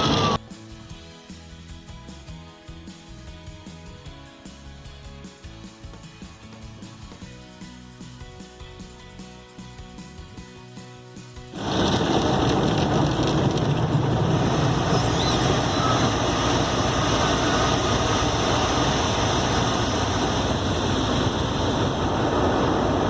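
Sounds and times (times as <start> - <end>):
car wash machinery rushing: 0.0 - 0.4, 11.6 - 23.0.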